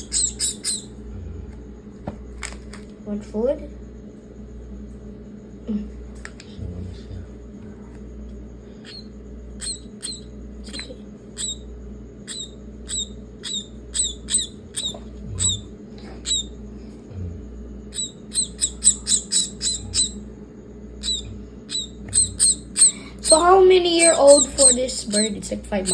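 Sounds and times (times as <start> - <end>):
bird chirping: 0.0 - 1.0, 8.8 - 16.6, 17.9 - 20.2, 21.0 - 25.9
steady low hum: 0.0 - 25.9.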